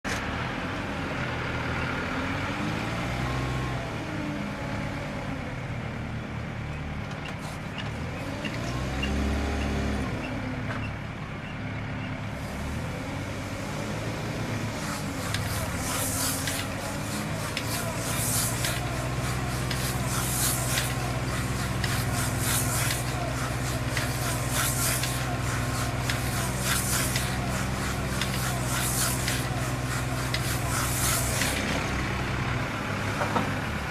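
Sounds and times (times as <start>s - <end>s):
diesel engine revving: 0.2s - 7.0s, 7.6s - 33.9s
short hisses: 14.6s - 31.9s.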